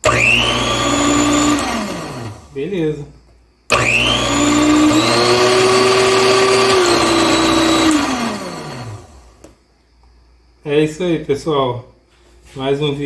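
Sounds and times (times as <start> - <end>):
food processor motor whining: 0.0 - 2.6, 3.7 - 9.5.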